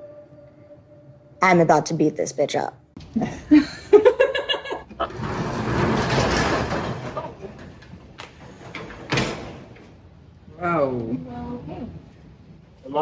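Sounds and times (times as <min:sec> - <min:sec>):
metal roll-up door rattling open: 0:04.9 - 0:10.0.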